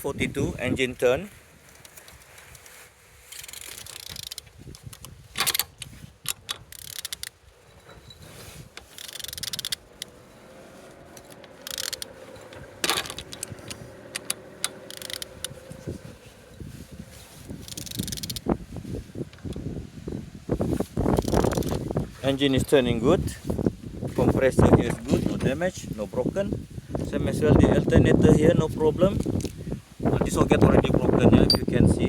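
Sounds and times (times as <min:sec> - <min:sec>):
metallic clicks and clunks: 0:03.4 - 0:16.6, 0:17.6 - 0:18.6.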